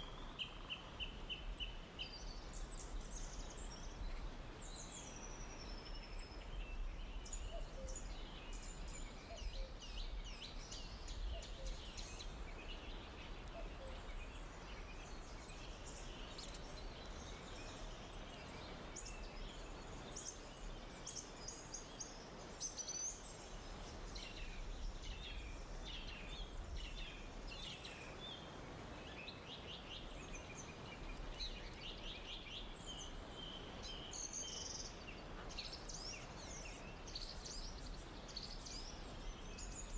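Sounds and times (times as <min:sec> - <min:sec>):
faint background hiss: 0:00.0 - 0:39.9
small birds chirping and trilling: 0:07.2 - 0:28.5.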